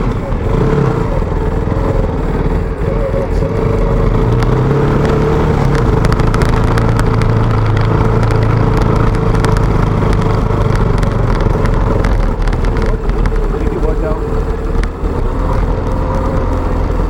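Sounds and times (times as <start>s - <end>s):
motorcycle engine running: 0.0s - 17.0s
clicks and rattles: 4.3s - 17.0s.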